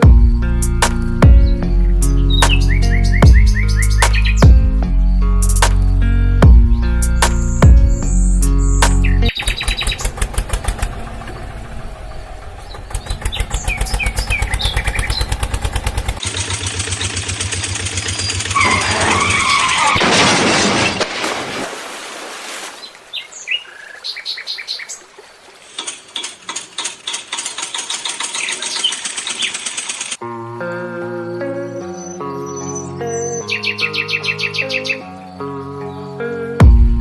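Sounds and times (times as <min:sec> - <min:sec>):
birds chirping: 0:00.0 - 0:19.9, 0:22.7 - 0:36.8
vehicle engine chugging: 0:09.1 - 0:19.8.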